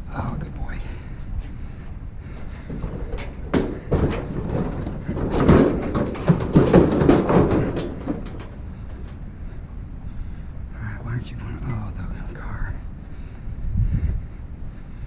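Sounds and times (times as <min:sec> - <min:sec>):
scrap metal knocking and clattering: 0:01.3 - 0:09.7.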